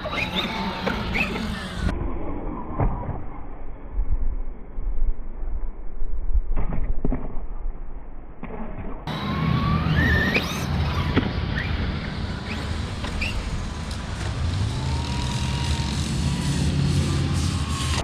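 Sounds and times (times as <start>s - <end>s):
electric rc car motor whining: 0.0s - 1.9s, 9.1s - 18.0s.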